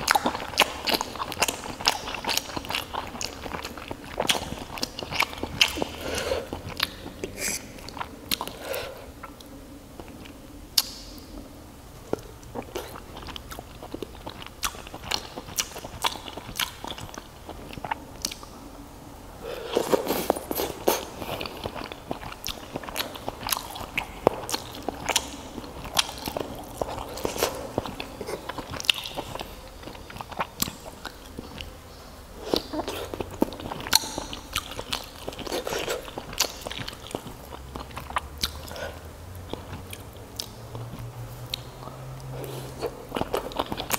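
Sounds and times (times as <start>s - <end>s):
wet chewing mouth sounds: 0.0s - 11.2s, 12.1s - 18.6s, 19.4s - 31.8s, 32.4s - 43.9s
mouth clicks and smacks: 9.2s - 11.3s.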